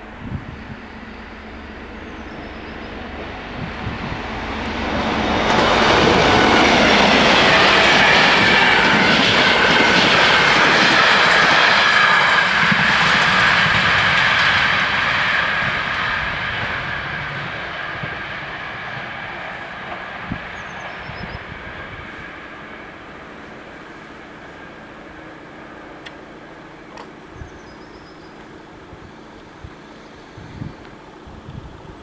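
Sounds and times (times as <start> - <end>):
train wheels clattering on rails: 2.3 - 21.4.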